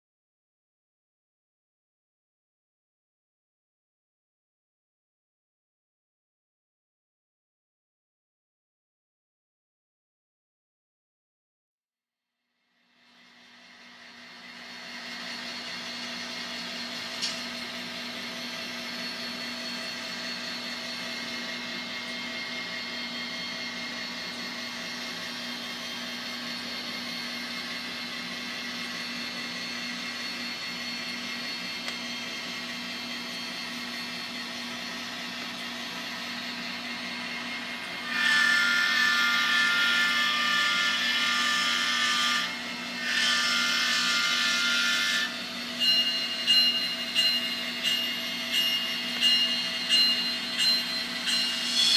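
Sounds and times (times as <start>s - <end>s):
diesel locomotive idling: 45.5s - 51.9s.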